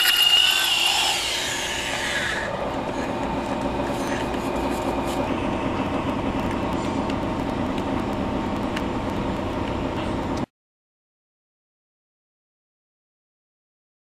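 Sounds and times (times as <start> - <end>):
electric drill motor running: 0.0 - 4.4.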